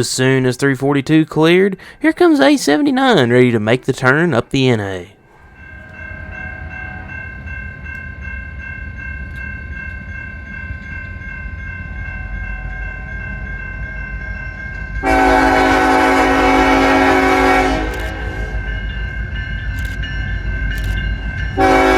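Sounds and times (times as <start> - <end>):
diesel locomotive rumbling: 0.0 - 21.9
steady high-pitched tones: 2.1 - 15.1
locomotive air horn: 15.0 - 18.7, 21.6 - 21.9.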